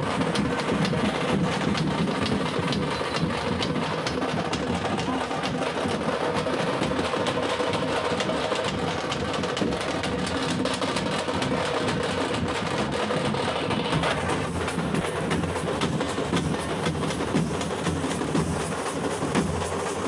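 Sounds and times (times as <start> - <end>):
frame drums beaten with sticks: 0.0 - 20.0.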